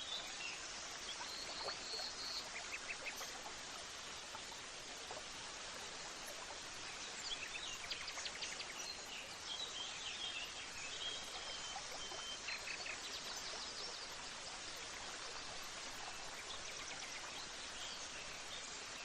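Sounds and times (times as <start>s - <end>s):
steady hiss like running water: 0.0s - 19.0s.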